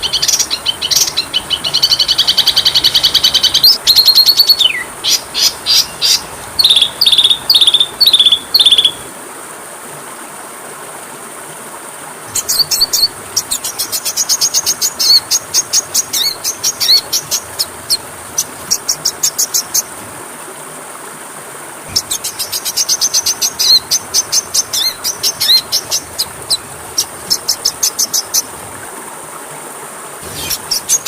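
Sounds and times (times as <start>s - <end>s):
bird song trills and whistles: 0.0s - 9.0s, 12.3s - 17.7s, 21.9s - 26.6s.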